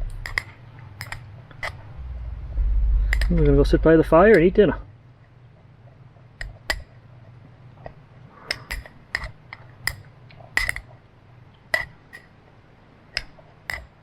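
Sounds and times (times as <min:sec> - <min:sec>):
cutlery clinking against dish: 0:08.5 - 0:10.9.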